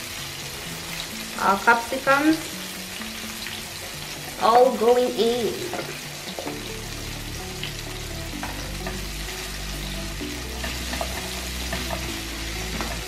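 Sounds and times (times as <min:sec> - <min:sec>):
peppers sizzling in a frying pan: 0:00.0 - 0:13.0
wooden spatula scraping a pan: 0:10.6 - 0:13.0.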